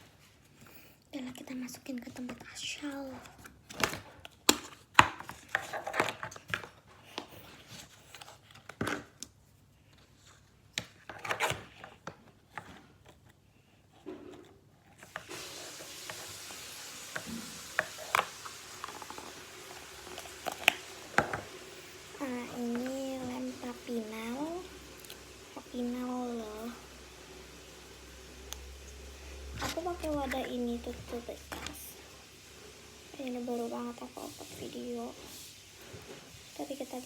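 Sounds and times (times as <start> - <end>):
rubbing and rustling: 1.4 - 37.0
steady hiss: 15.1 - 37.0.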